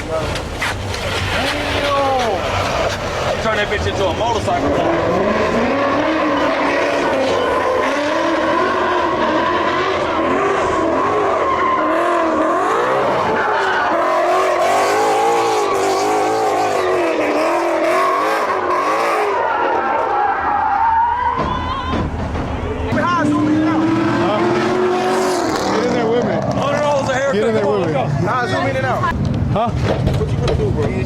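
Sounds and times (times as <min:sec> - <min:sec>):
tires squealing: 0:00.0 - 0:31.0
car engine revving hard: 0:01.1 - 0:19.4, 0:22.9 - 0:27.3.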